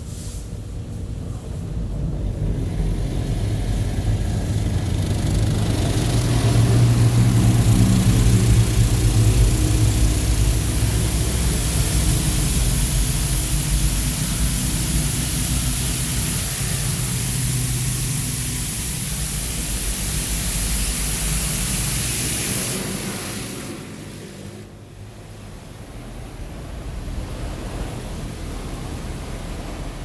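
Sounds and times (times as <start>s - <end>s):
low hum: 0.6s - 30.0s
water jets spraying on a van: 2.1s - 24.7s.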